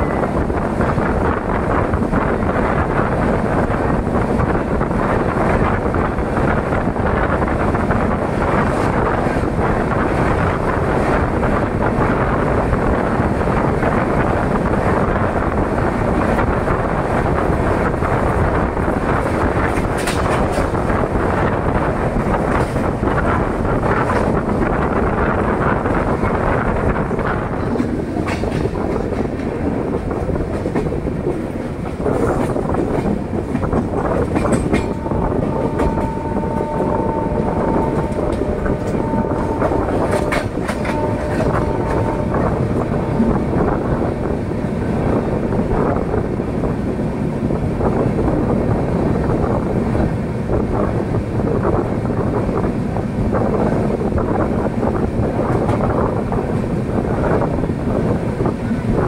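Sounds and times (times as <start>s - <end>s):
train coaches rumbling on track: 0.0s - 59.0s
train horn blasts: 34.8s - 44.2s.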